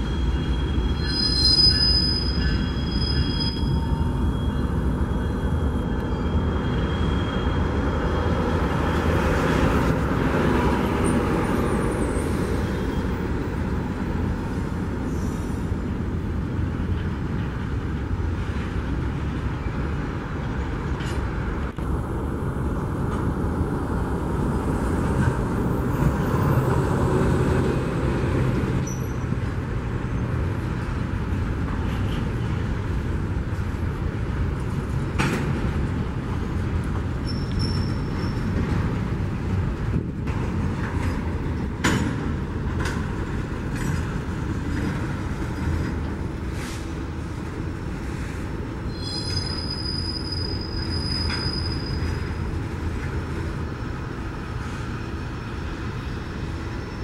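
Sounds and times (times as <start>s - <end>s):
faint wheel squeals: 0.0s - 8.3s, 28.8s - 29.3s, 37.2s - 38.6s, 48.9s - 52.5s
train wheels rumbling on rail: 0.0s - 57.0s.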